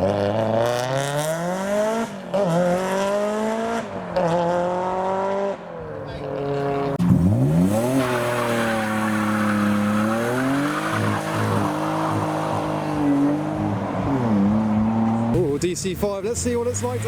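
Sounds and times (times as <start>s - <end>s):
car engine revving hard: 0.0s - 5.6s, 6.5s - 15.4s.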